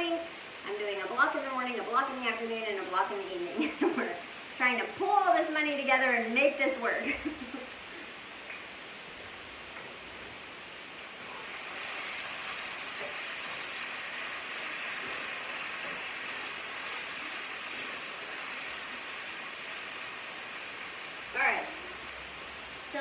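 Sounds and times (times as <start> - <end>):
chicken sizzling in a skillet: 11.1 - 23.0.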